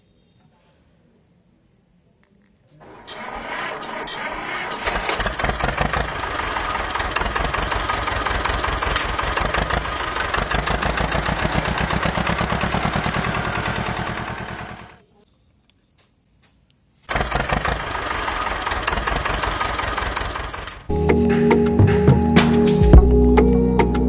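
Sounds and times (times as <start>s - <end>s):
model tractor motor chugging: 2.9s - 15.0s, 17.1s - 21.4s.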